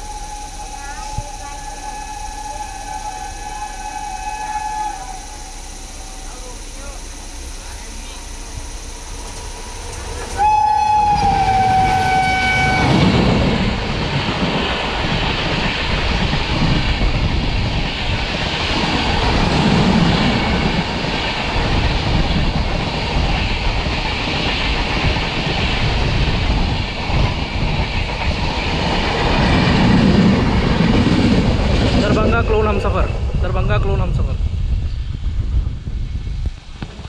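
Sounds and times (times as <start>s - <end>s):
locomotive air horn blast: 0.0s - 7.5s, 10.1s - 13.3s
train wheels rumbling on rails: 0.0s - 37.0s.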